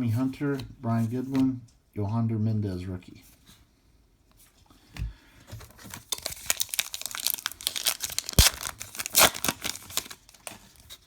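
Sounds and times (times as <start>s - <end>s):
foil wrapper crinkling and tearing: 5.7s - 11.0s.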